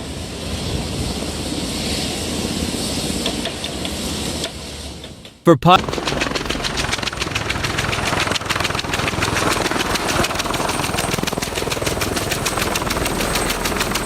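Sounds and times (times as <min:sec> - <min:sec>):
helicopter rotor chopping: 0:05.5 - 0:14.0
helicopter turbine noise: 0:05.5 - 0:14.0.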